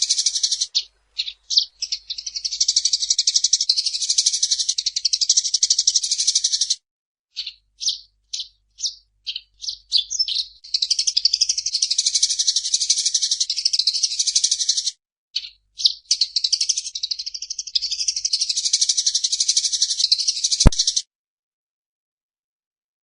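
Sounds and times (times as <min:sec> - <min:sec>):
sparrow chattering trills: 0:00.0 - 0:21.0
sharp click: 0:20.6 - 0:21.0.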